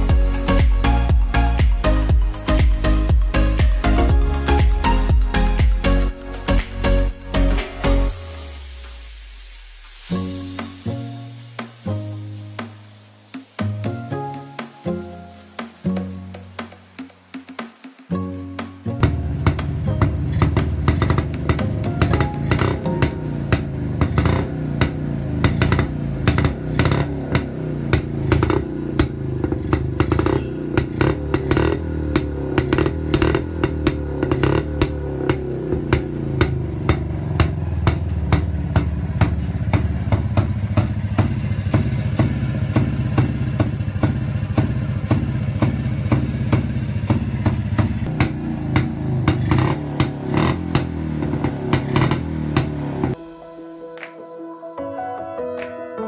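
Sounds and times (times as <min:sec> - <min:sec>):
motorcycle engine revving: 0:19.0 - 0:53.2.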